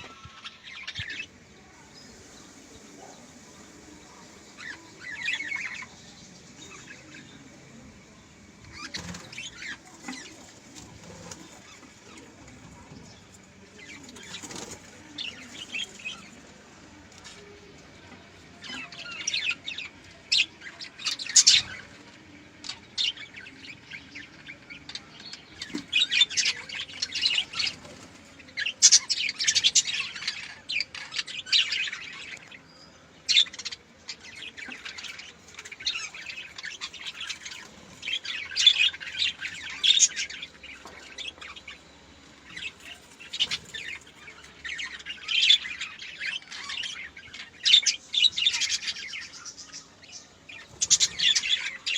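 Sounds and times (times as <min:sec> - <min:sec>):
budgerigars chirping: 0:33.3 - 0:51.9.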